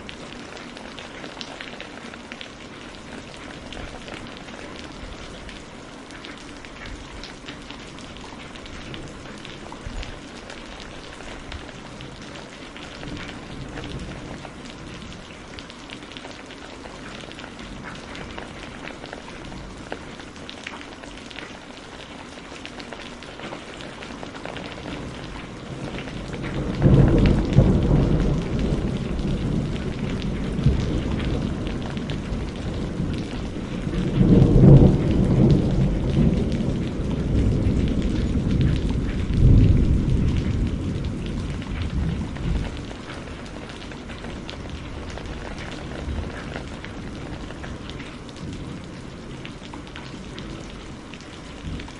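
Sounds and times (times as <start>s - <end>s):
raindrops ticking: 0.0s - 51.9s
steady rain falling: 0.0s - 51.9s
thunder rumbling: 24.8s - 50.8s.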